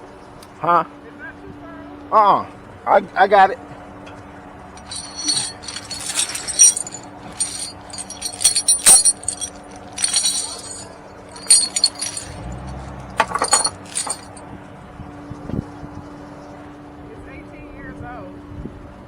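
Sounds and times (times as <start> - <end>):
small metal pieces jingling: 4.8 - 14.4.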